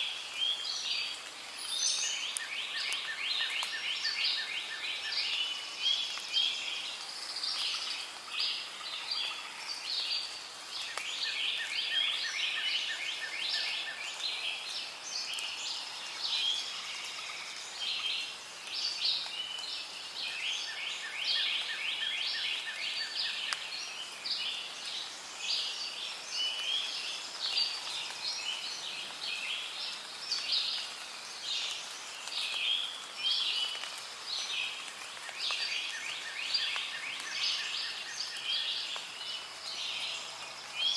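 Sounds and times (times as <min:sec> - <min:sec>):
birds and insects chirping: 0:00.0 - 0:40.9.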